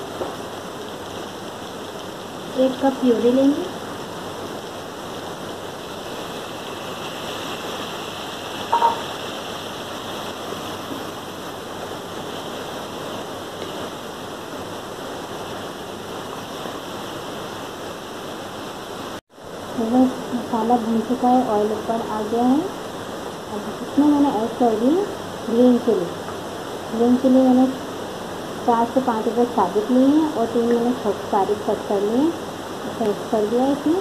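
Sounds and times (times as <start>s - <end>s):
food sizzling in hot oil: 5.8s - 11.0s.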